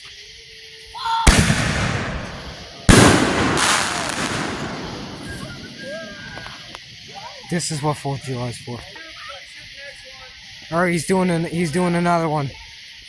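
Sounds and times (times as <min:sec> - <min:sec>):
firework bangs: 0:01.1 - 0:07.1.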